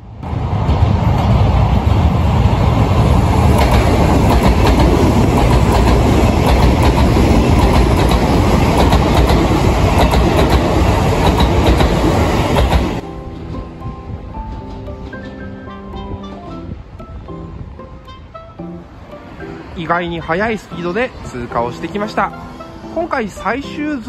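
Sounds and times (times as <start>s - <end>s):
train passing: 0.0s - 24.0s
wheels clacking over rail joints: 0.6s - 13.8s.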